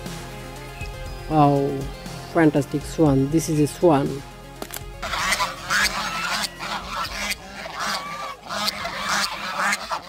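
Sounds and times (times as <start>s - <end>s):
swan honking: 5.0s - 10.0s.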